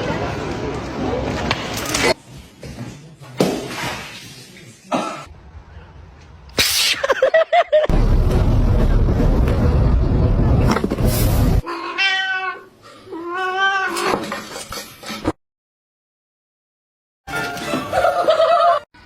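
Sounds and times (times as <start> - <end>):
loud low rumbling: 7.9 - 11.6
cat yowling: 11.6 - 14.1.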